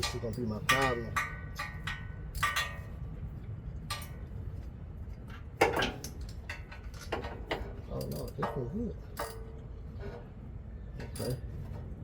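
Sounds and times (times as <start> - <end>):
metal tools clinking: 5.8 - 10.2, 11.0 - 11.4.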